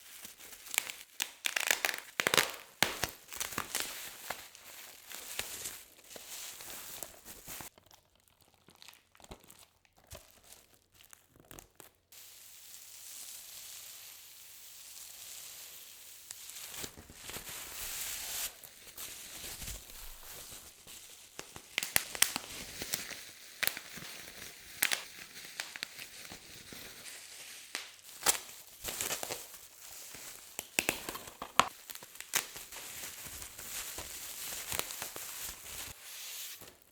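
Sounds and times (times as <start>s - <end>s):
plastic wrapping tearing and crinkling: 0.0s - 36.9s.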